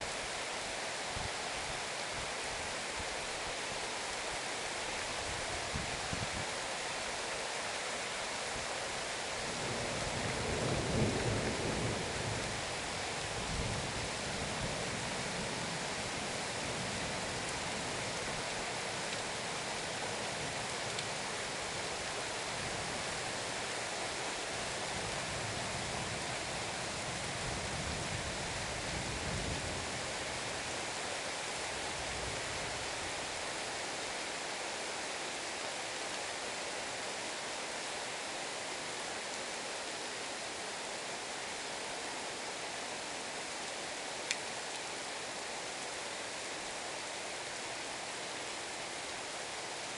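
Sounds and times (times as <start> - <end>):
heavy rain: 0.0 - 49.9
thunder rumbling: 9.6 - 12.6.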